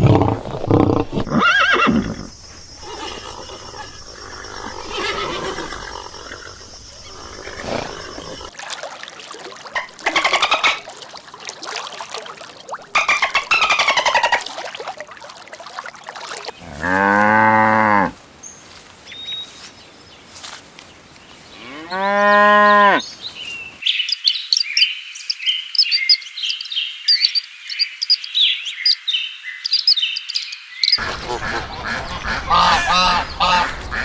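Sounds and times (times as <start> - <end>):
high wavering animal calls: 0.4 - 8.5
low mooing call: 16.6 - 18.2.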